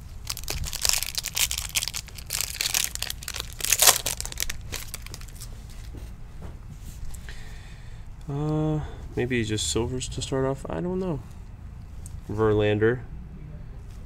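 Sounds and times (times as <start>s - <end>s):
foil wrapper tearing and crinkling: 0.0s - 5.5s.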